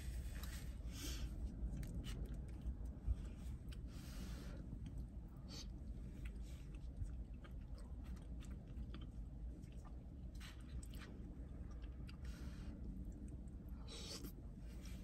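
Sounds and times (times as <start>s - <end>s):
steady low rumble: 0.0s - 15.0s
person chewing: 4.7s - 15.0s.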